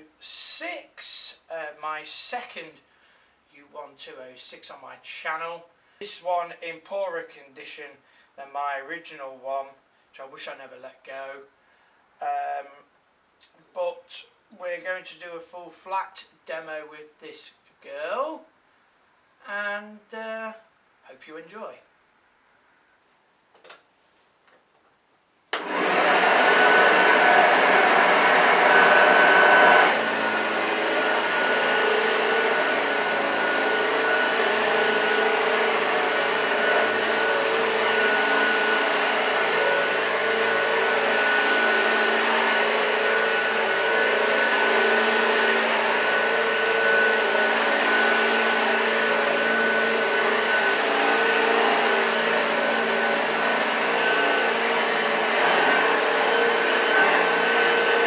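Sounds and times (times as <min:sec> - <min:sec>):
vacuum cleaner running: 0:25.6 - 0:58.0.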